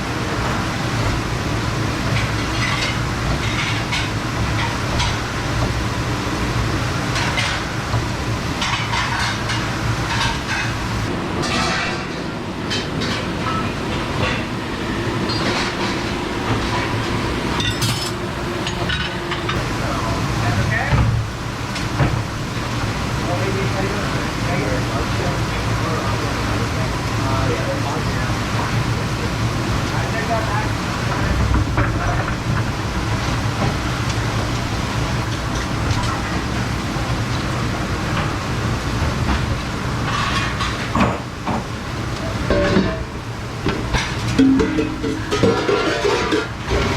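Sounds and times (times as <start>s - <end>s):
dish station rumbling: 0.0s - 46.9s
mechanical drone with low hum: 0.0s - 46.9s
dishes and racks clattering: 0.5s - 22.3s, 30.0s - 34.5s, 39.0s - 46.9s
dishes and cutlery clinking: 8.6s - 10.8s, 11.4s - 14.5s, 15.3s - 16.9s, 17.5s - 19.6s, 40.1s - 41.3s, 42.5s - 43.1s, 43.9s - 46.9s.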